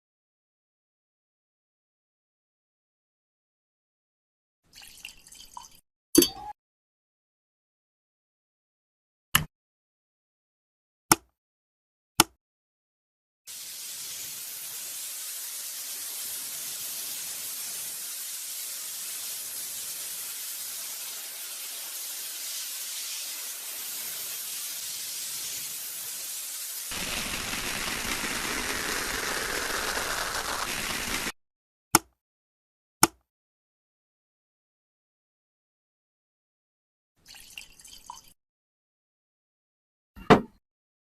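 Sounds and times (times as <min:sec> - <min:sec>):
high-pitched hiss: 0:24.9 - 0:31.3
coarse rushing noise: 0:26.9 - 0:31.4.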